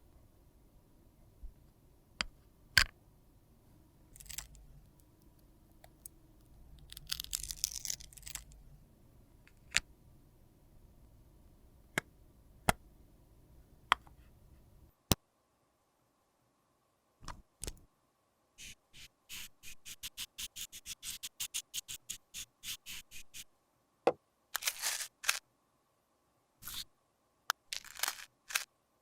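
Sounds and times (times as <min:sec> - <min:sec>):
scraping and rustling: 0:24.6 - 0:25.4, 0:27.7 - 0:28.7.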